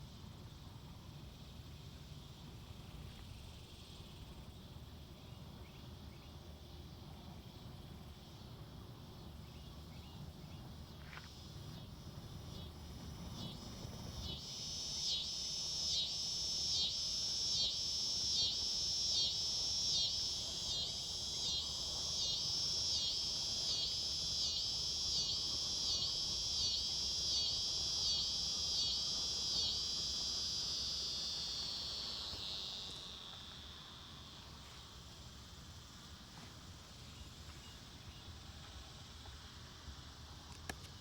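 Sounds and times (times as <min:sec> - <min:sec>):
insect buzzing: 0:13.4 - 0:38.2.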